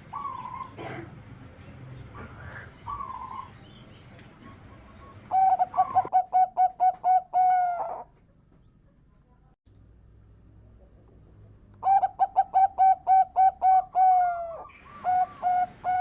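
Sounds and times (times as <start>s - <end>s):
dove cooing: 0.0s - 1.3s, 2.2s - 3.6s, 4.3s - 8.2s, 11.8s - 16.0s.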